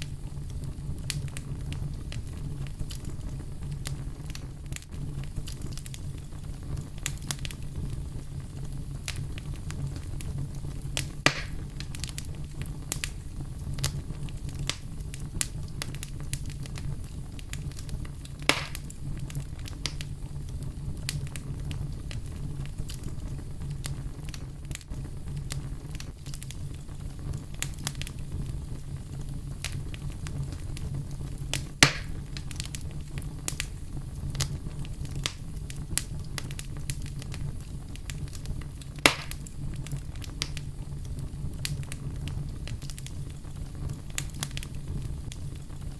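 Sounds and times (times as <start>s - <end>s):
fireplace fire crackling: 0.0s - 45.9s.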